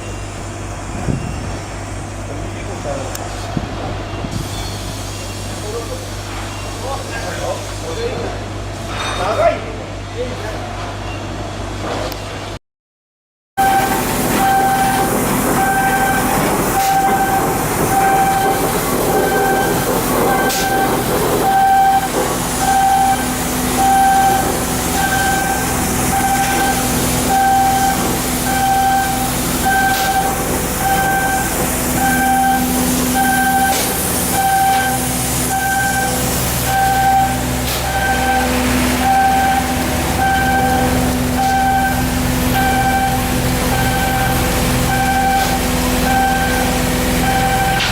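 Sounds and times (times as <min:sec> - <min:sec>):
electronic warning beeper: 0:13.6 - 0:47.9
industrial clatter: 0:13.6 - 0:47.9
machinery hum: 0:13.6 - 0:47.9.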